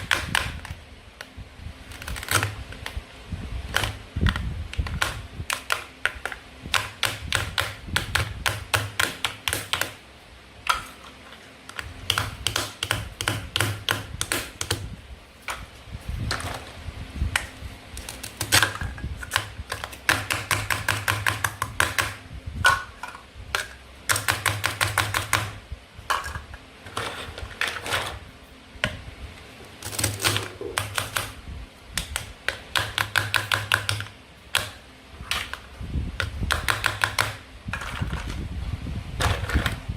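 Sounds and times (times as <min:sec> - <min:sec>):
toy knife cutting plastic food: 0:29.8 - 0:31.4.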